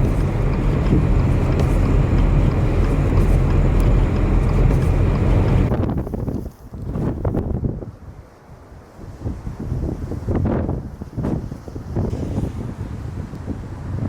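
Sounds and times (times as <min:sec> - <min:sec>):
vehicle rumbling on highway: 0:00.0 - 0:07.3
wind noise: 0:00.0 - 0:14.0.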